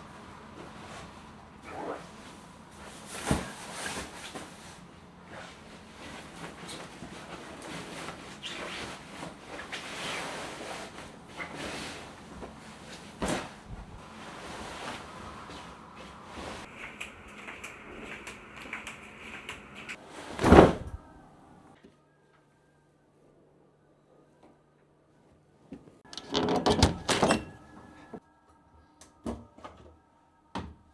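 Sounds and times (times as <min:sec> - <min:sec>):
objects moved and set down: 0:26.1 - 0:28.2.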